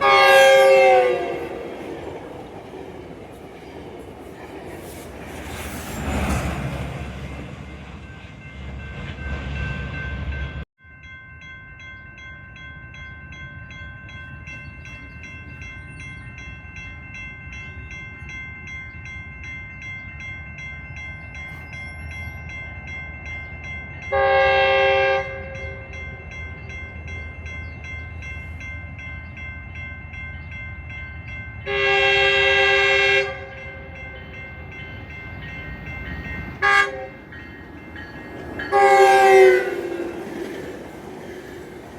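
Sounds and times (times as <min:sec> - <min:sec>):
locomotive horn blasts: 0:00.0 - 0:01.7, 0:24.1 - 0:25.9, 0:31.6 - 0:34.1, 0:36.6 - 0:37.2, 0:38.7 - 0:40.2
train rumbling: 0:00.0 - 0:10.7, 0:12.6 - 0:41.9
high ringing tone: 0:09.6 - 0:24.1.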